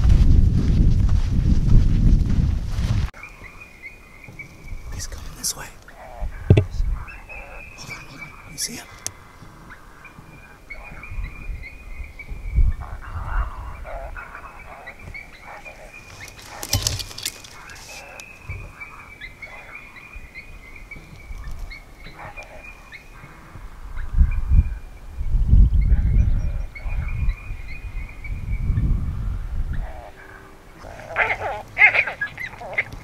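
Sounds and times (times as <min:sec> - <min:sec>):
wind on microphone: 0:00.0 - 0:03.2, 0:06.0 - 0:33.0
sharp knock: 0:06.5 - 0:06.8
electronic animal distress call: 0:30.0 - 0:32.9.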